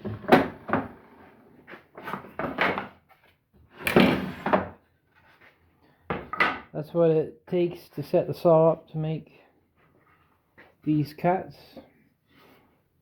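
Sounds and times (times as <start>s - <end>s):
wooden knocks and scrapes: 0.0s - 6.7s.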